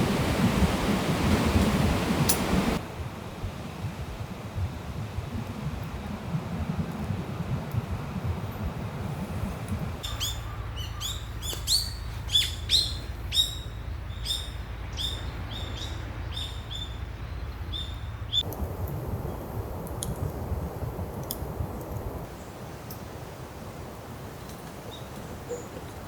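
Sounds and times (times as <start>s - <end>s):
low steady rumble: 0.0s - 22.8s
bird chirping: 10.0s - 18.5s.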